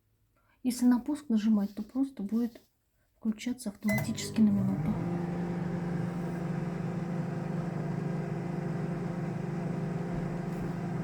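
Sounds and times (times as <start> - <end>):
microwave oven humming: 3.9 - 11.0.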